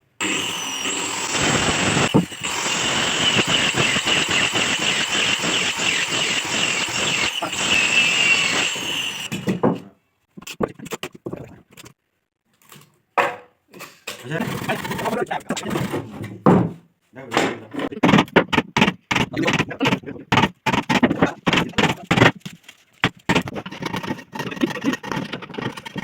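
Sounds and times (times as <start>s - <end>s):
power tool whining: 0.0s - 9.5s
sharp wooden knocks: 17.4s - 22.4s.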